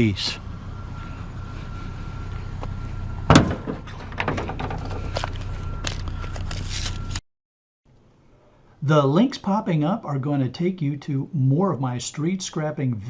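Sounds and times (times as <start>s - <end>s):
steady low hum: 0.0s - 7.2s
heavy thunk: 3.3s - 4.8s
scrap metal knocking and rattling: 3.3s - 5.2s.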